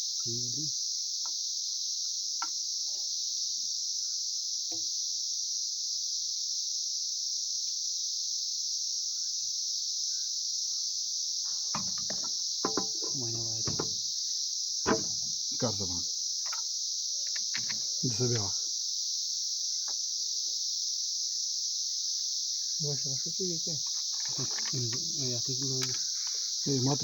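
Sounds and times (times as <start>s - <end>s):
crickets trilling: 0.0s - 27.0s
faint clicks: 17.3s - 17.8s, 23.9s - 26.4s
man's voice: 26.7s - 27.0s.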